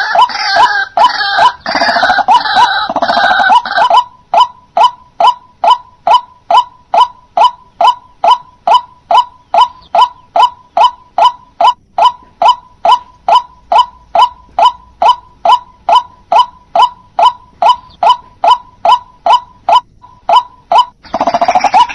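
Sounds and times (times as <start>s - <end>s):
waterhen honking calls: 0.0s - 21.9s.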